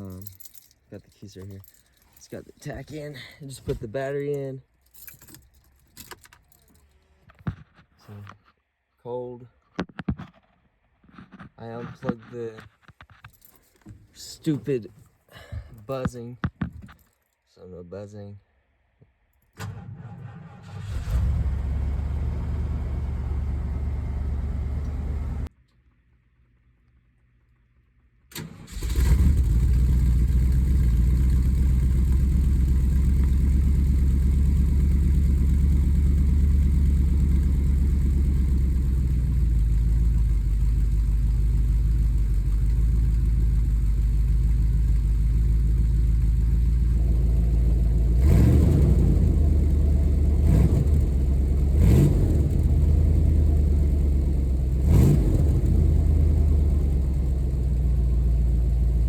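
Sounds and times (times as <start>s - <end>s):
truck engine rumbling: 19.6s - 25.5s.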